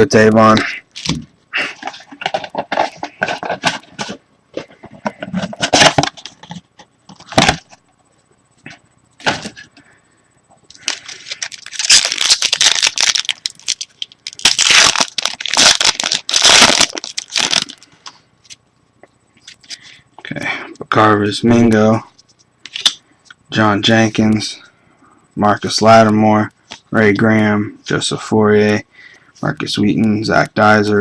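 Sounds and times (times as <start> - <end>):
wrapper tearing and crinkling: 10.8 - 17.8.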